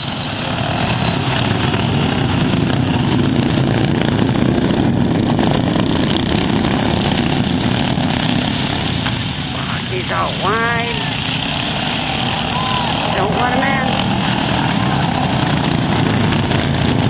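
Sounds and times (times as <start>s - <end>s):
racing lawn mower engines: 0.0s - 17.0s.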